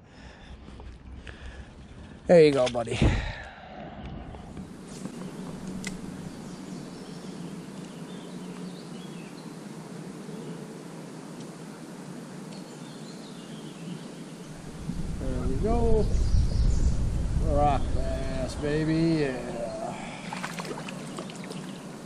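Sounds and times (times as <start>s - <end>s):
outdoor background noise: 0.0s - 22.0s
faint bird chirps: 12.6s - 18.5s.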